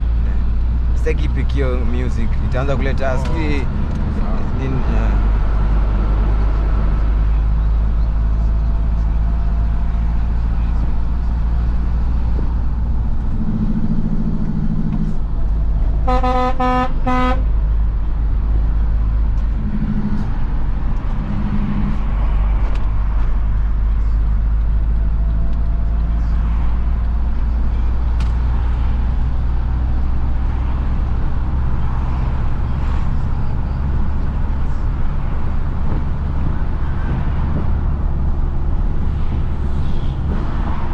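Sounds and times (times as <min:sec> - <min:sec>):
truck horn toots: 0:16.0 - 0:17.5.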